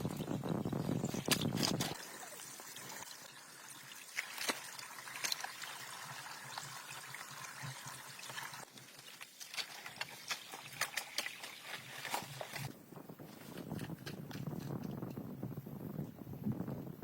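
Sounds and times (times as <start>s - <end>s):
water trickling: 1.9s - 12.7s.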